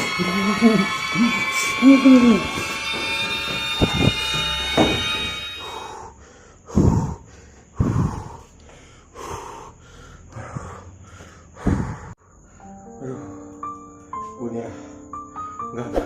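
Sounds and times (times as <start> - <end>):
person breathing heavily: 5.6 - 12.7.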